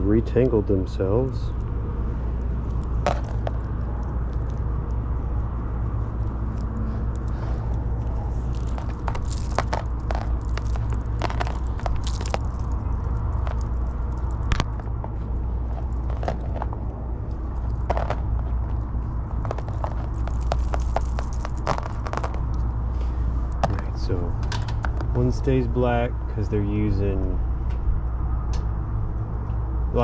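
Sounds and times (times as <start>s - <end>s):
steady low hum: 0.0s - 30.0s
wire being handled: 1.6s - 25.2s.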